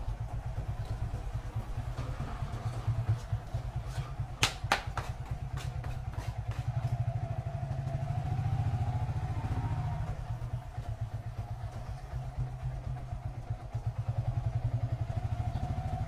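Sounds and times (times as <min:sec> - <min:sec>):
motorcycle engine running: 0:00.0 - 0:16.0
sharp knocks: 0:04.4 - 0:06.7.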